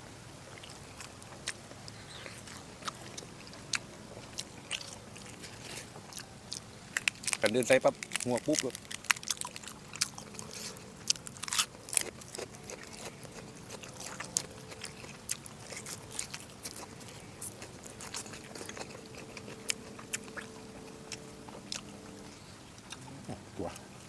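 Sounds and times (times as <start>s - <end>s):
wet mouth chewing smacks: 0.6s - 7.4s.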